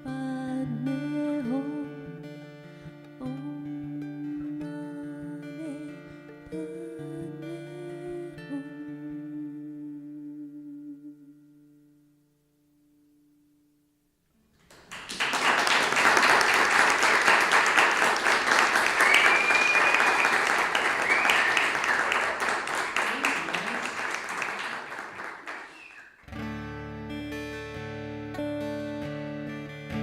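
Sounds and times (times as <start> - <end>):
acoustic guitar music: 0.0 - 13.4, 26.1 - 30.0
audience applauding and cheering: 14.7 - 26.2.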